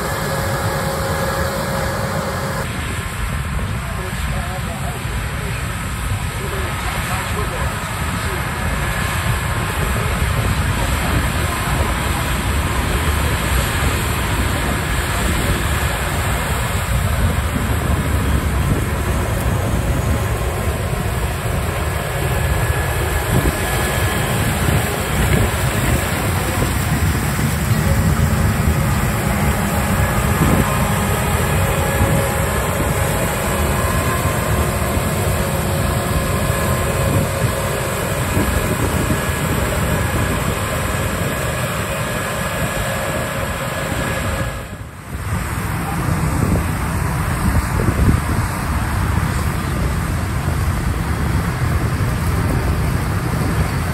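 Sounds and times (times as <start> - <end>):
faint steady whines: 0.0 - 53.9
farm machinery rumble: 0.0 - 53.9.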